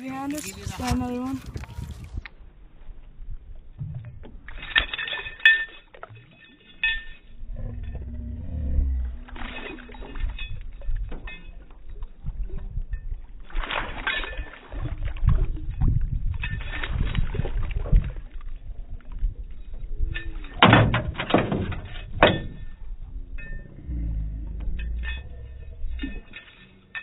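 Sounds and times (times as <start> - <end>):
water splashing: 0.0 - 2.4, 3.0 - 27.0
low rumble of wind: 0.0 - 27.0
knocks in a small boat: 20.6 - 22.8.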